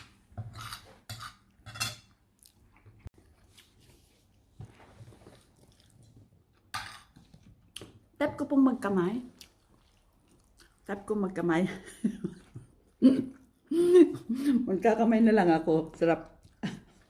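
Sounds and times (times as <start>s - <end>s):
cutlery clinking on a plate: 0.4s - 2.2s
soft chewing: 2.3s - 8.2s, 8.8s - 14.4s, 15.9s - 17.0s.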